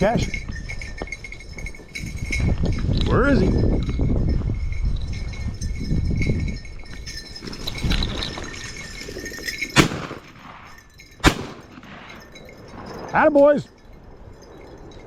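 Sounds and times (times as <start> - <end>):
shotgun shots: 9.8 - 12.2.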